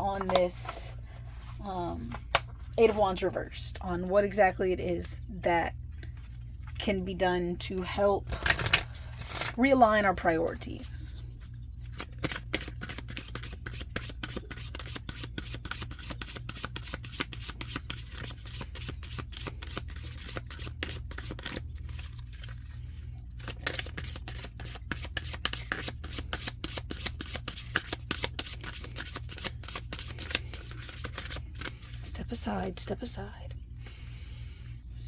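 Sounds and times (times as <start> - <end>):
cards being shuffled: 0.1 - 3.0, 8.3 - 9.6, 11.9 - 32.1.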